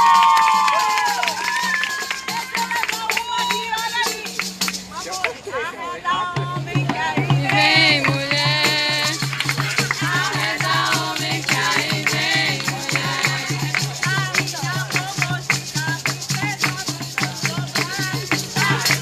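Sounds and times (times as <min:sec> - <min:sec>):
rattling shakers: 0:00.0 - 0:05.6, 0:07.0 - 0:19.0
several voices: 0:01.9 - 0:15.4
low drum beating fast rhythm: 0:06.3 - 0:19.0.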